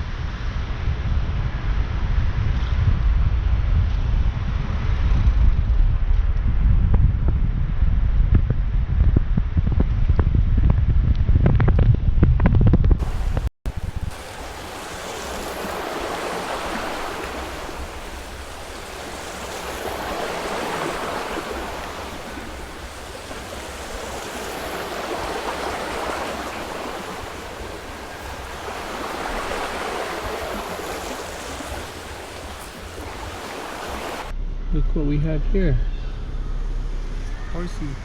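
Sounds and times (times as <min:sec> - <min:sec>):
wind rushing through trees: 0:13.0 - 0:34.4.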